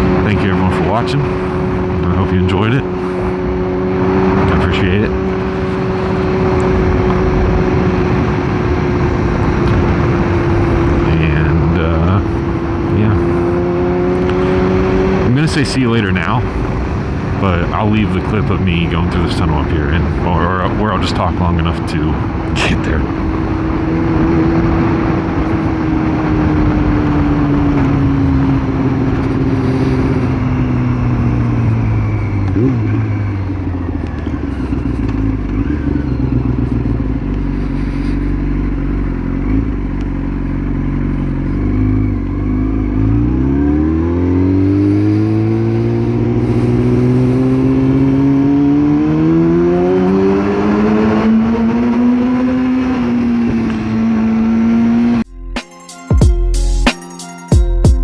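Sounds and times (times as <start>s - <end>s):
motorcycle engine: 0.0s - 55.5s
wind noise: 22.1s - 35.0s.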